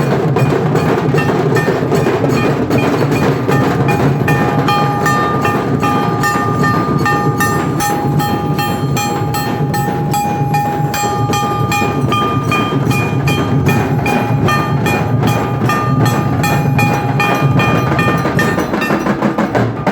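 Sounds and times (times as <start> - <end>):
drum troupe playing rhythm: 0.0 - 19.9
sustained metallic ringing: 0.0 - 19.9.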